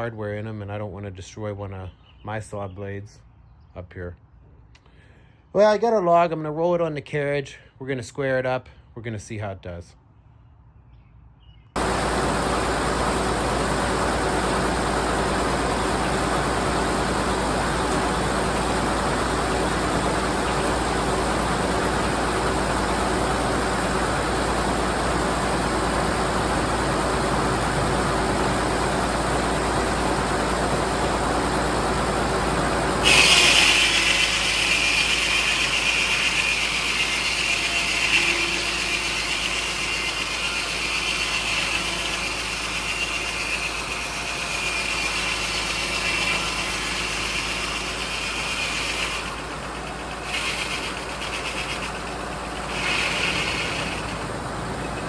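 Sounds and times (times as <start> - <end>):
loud high hiss: 11.8 - 36.4
sawmill running: 11.8 - 55.0.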